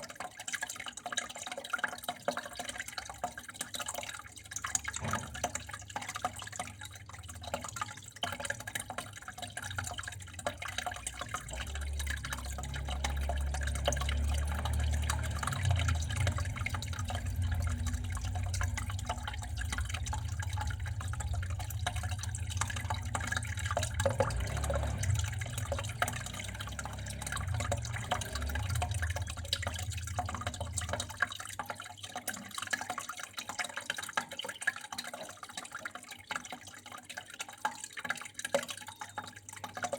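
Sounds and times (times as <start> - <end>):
water trickling and dripping: 0.0 - 39.9
low rumble: 9.8 - 31.3.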